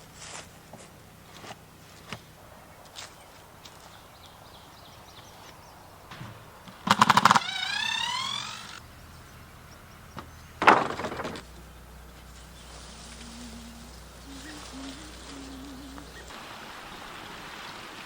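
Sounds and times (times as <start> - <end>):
wood cracking: 6.1 - 8.8, 10.2 - 13.2
wood squealing: 6.1 - 16.3.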